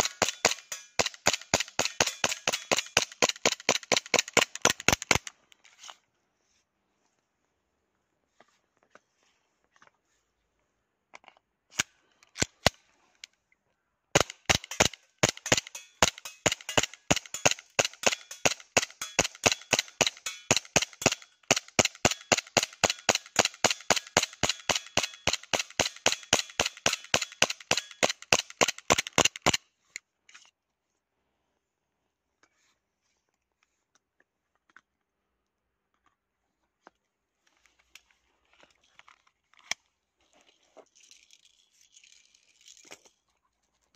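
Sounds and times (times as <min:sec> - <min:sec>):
airsoft pistol shots: 0:14.2 - 0:29.6.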